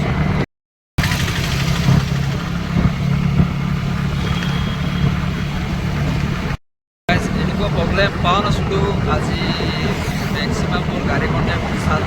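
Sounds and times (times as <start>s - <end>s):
scooter engine idling: 1.0s - 6.5s.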